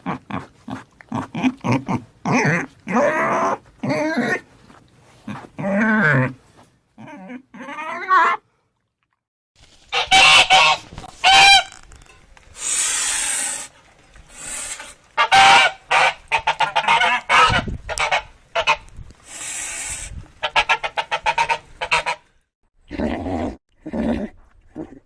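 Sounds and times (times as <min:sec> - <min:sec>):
poultry cackling: 0:09.9 - 0:11.8, 0:15.2 - 0:18.8, 0:20.4 - 0:22.3
poultry hissing: 0:12.5 - 0:15.4, 0:19.2 - 0:20.2
poultry honking: 0:15.2 - 0:18.8.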